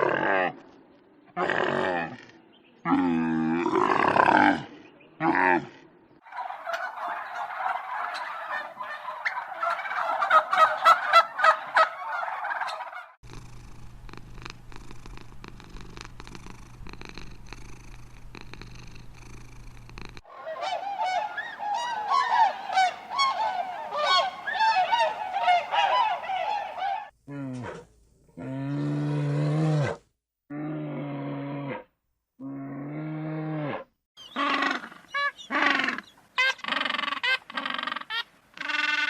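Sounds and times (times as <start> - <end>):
poultry flock calling: 6.3 - 13.2, 20.3 - 27.1
steady low hum: 13.2 - 27.1.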